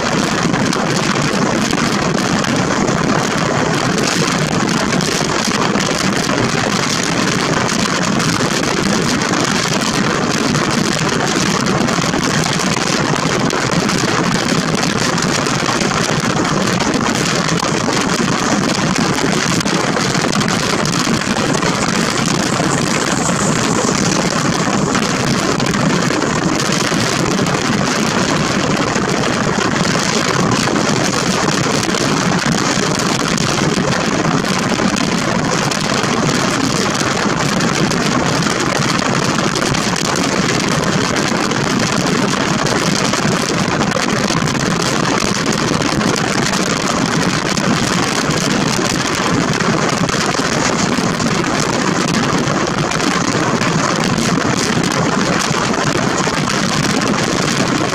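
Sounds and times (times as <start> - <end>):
wind rushing past: 16.2 - 29.0.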